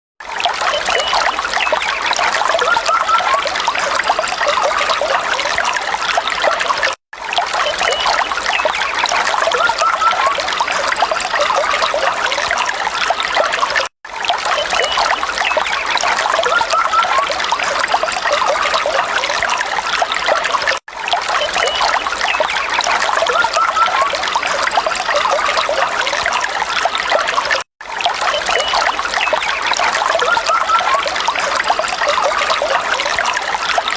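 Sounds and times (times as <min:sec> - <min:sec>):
water trickling: 0:00.2 - 0:33.9.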